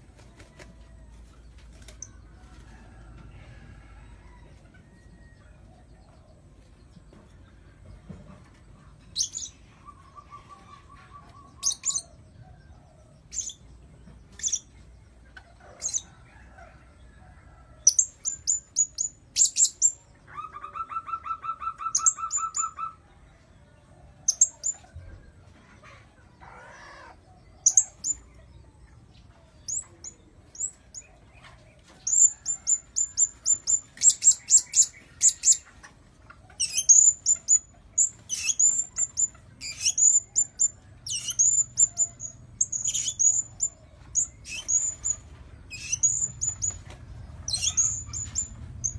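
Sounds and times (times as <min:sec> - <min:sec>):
high-pitched parrot chirps: 0:19.4 - 0:23.0, 0:47.5 - 0:48.9.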